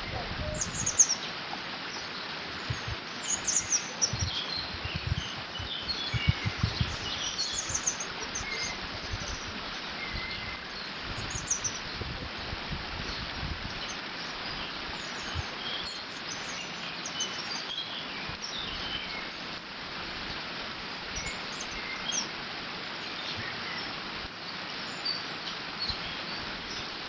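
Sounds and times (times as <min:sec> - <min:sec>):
wind buffeting microphone: 0:00.0 - 0:01.2, 0:02.4 - 0:15.6
small birds chirping: 0:00.0 - 0:12.3, 0:13.0 - 0:19.4, 0:22.9 - 0:27.0
water rushing through dam: 0:00.0 - 0:27.0.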